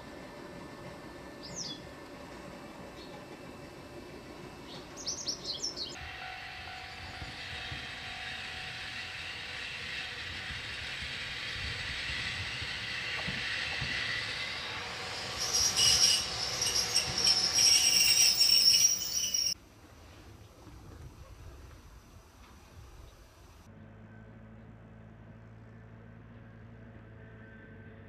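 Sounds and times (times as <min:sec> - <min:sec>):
electric train approaching: 0:00.0 - 0:19.6
high-pitched squealing and rattling: 0:08.6 - 0:19.6.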